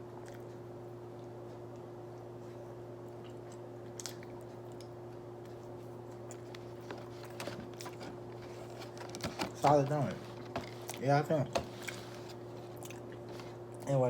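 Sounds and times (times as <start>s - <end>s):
steady low hum: 0.0s - 14.0s
person chewing: 0.2s - 0.6s, 3.1s - 8.4s, 11.7s - 13.9s.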